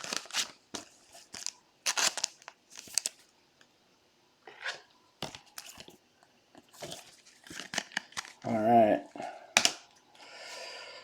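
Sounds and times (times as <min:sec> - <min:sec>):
wrapper crinkling and tearing: 0:00.0 - 0:03.3, 0:06.8 - 0:08.6.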